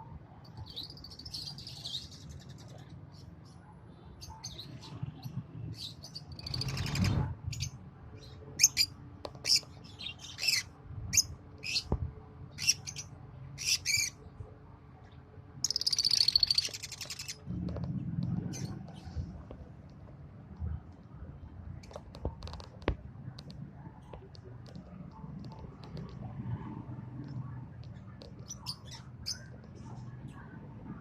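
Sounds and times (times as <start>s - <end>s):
lovebirds chirping: 15.6s - 17.4s
low rumbling noise: 17.2s - 31.0s.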